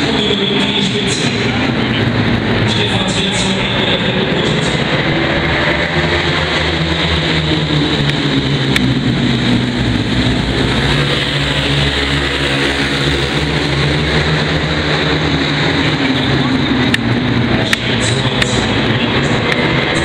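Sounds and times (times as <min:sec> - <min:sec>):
racing motorcycles engines: 0:00.0 - 0:20.0.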